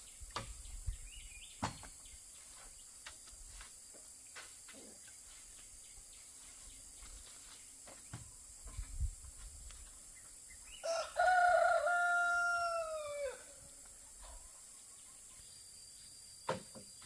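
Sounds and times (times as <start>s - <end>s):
rooster crowing: 10.8s - 13.6s.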